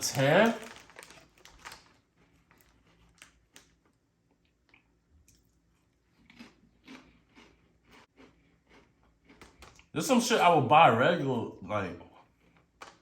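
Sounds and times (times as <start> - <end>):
chewing crunchy chips: 0.0 - 10.0.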